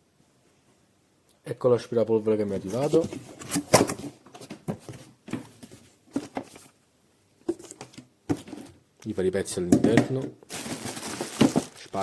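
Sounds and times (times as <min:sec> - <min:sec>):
cardboard box being handled: 0:10.5 - 0:12.0.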